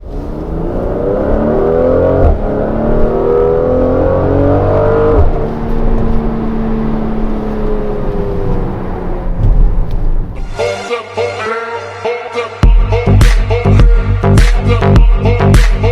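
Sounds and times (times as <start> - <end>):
car engine accelerating hard: 0.0 - 10.5.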